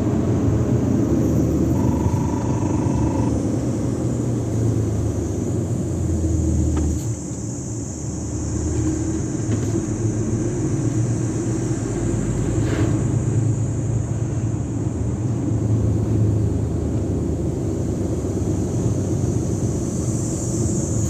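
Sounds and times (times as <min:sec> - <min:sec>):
truck diesel engine rumbling: 0:00.0 - 0:12.4.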